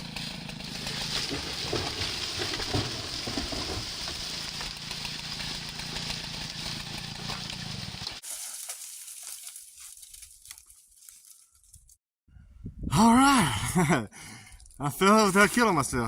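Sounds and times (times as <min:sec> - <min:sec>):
chainsaw engine running: 0:00.0 - 0:08.2.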